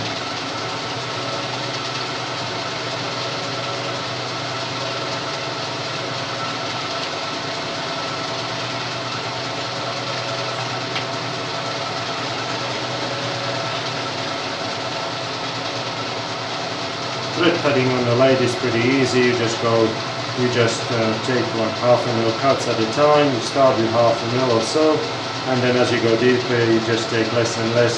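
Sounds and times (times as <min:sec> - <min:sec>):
metal lathe humming: 0:00.0 - 0:27.9.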